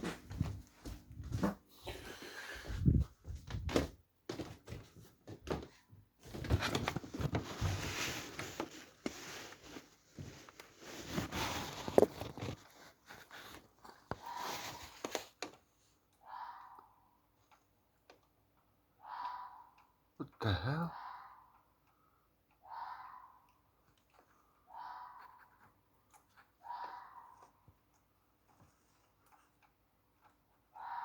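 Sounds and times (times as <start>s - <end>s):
thumps and knocks from movement: 2.8s - 15.6s
hoarse animal calls: 16.2s - 17.1s, 19.0s - 19.8s, 20.7s - 21.5s, 22.6s - 23.5s, 24.6s - 25.4s.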